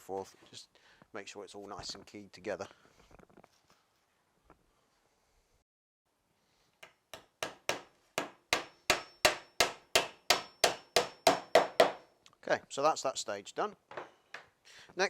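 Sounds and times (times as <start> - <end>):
hammer driving nail into wood: 6.8 - 12.0.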